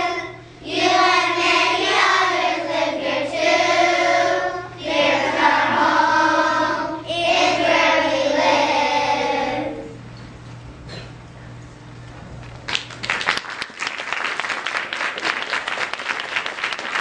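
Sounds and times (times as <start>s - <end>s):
children's choir singing: 0.0s - 10.0s.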